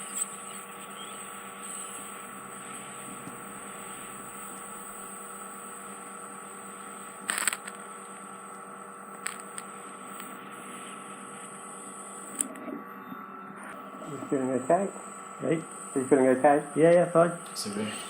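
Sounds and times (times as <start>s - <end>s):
suction unit whistling hiss: 0.0s - 7.5s, 12.9s - 18.0s
crackling suction burst: 7.3s - 7.8s
small clicks: 7.3s - 7.8s, 9.1s - 10.4s.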